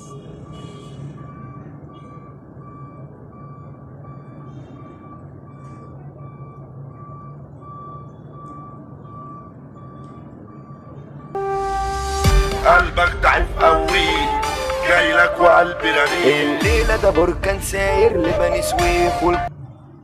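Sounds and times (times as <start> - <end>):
low hum: 11.4 - 19.4.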